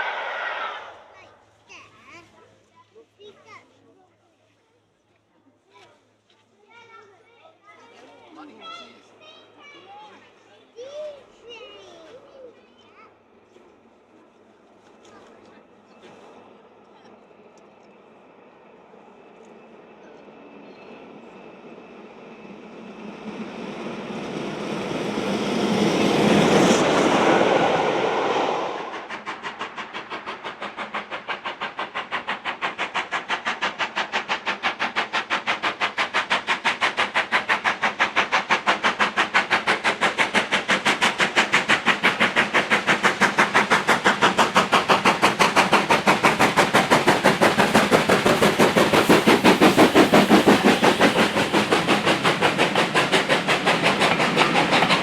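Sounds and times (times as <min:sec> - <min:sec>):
rushing sound: 0:00.0 - 0:01.5, 0:22.4 - 0:55.0
steam locomotive exhaust beats: 0:00.0 - 0:02.2, 0:13.6 - 0:55.0.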